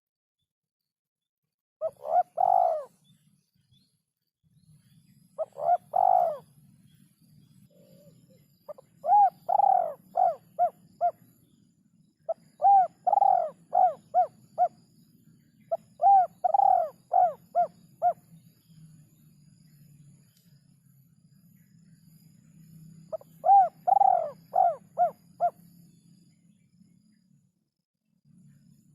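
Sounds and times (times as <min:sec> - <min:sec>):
dove cooing: 0:01.8 - 0:03.0, 0:05.4 - 0:06.6, 0:07.7 - 0:11.3, 0:12.3 - 0:14.8, 0:15.7 - 0:18.2, 0:23.1 - 0:25.6.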